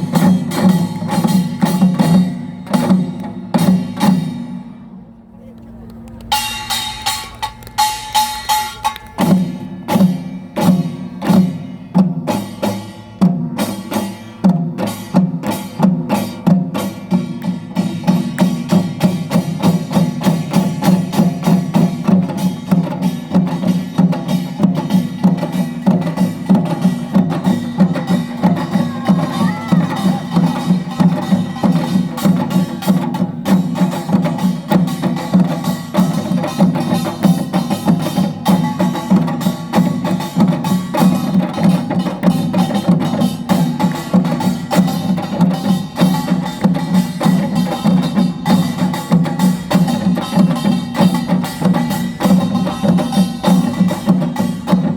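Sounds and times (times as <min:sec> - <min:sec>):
barrel drum: 0:00.0 - 0:04.8, 0:06.3 - 0:54.9
small gongs clanging: 0:06.3 - 0:14.2, 0:14.8 - 0:54.9
hourglass drum: 0:17.4 - 0:54.9.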